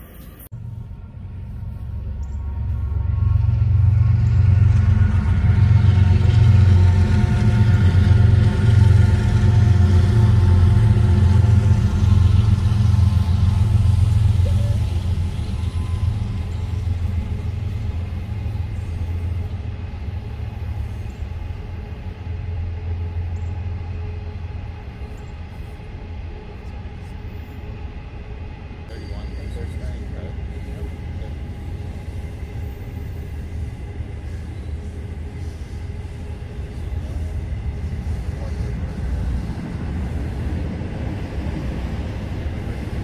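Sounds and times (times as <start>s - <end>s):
freight train rumbling past: 0.0s - 43.0s.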